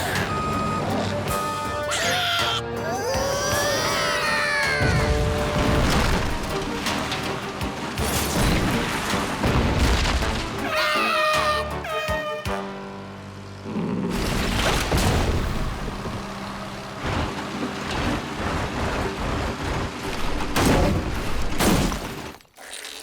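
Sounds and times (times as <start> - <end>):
loud rumbling din: 0.0 - 7.2
booming crashes: 4.8 - 10.7, 14.2 - 16.3.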